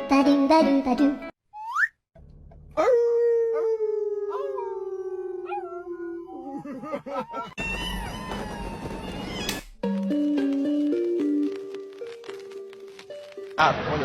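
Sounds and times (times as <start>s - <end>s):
dog howling: 2.8s - 9.0s.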